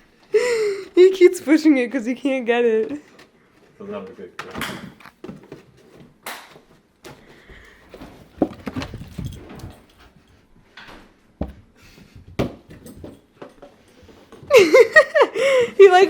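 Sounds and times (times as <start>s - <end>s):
scrapes and rustles: 6.8s - 10.5s
dog scrabbling at couch: 8.3s - 9.9s.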